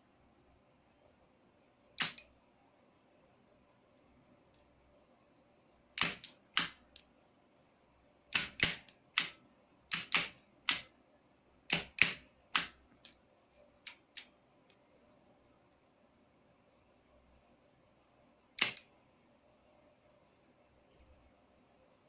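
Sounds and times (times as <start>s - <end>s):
sharp mechanical clicks: 2.0s - 2.3s, 6.0s - 6.8s, 8.3s - 10.9s, 11.7s - 12.7s, 18.6s - 18.9s.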